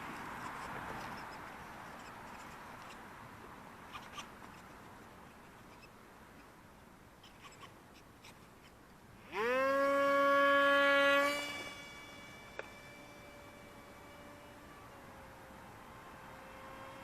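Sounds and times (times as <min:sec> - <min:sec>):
faint wind hiss: 0:00.0 - 0:17.0
model plane motor whining: 0:09.2 - 0:17.0.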